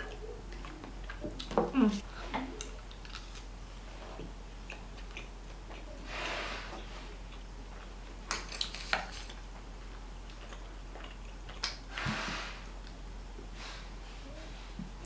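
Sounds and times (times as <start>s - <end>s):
food packaging clicks and crinkles: 2.6s - 3.5s, 7.8s - 9.6s.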